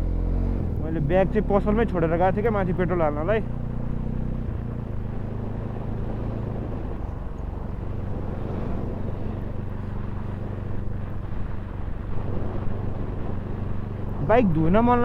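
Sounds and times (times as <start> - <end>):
motorcycle engine running: 0.0 - 15.0
road noise: 0.0 - 15.0
wind noise: 4.4 - 15.0.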